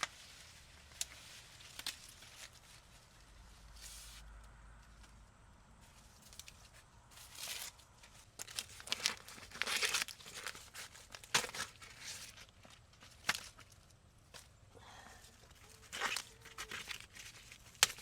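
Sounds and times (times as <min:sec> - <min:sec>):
tearing and crinkling: 0:00.0 - 0:04.2, 0:05.9 - 0:14.5, 0:15.4 - 0:18.0.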